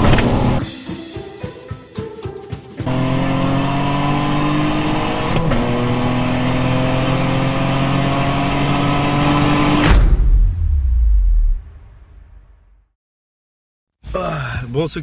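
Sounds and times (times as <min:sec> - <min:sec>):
car engine accelerating hard: 0:02.9 - 0:09.8.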